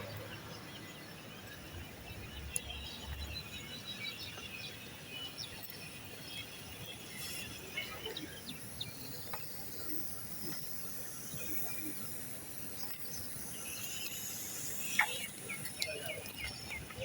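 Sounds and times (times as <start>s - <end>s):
birds chirping: 0.0s - 17.0s
high-pitched insect buzz: 7.0s - 16.7s.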